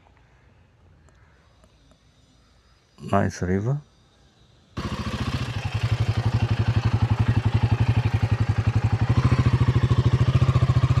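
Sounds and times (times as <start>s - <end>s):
motorcycle engine at low revs: 4.8s - 11.0s.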